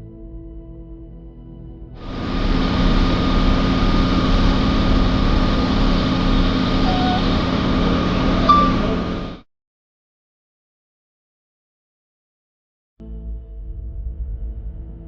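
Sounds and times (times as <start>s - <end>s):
large vehicle engine idling: 2.0s - 9.4s.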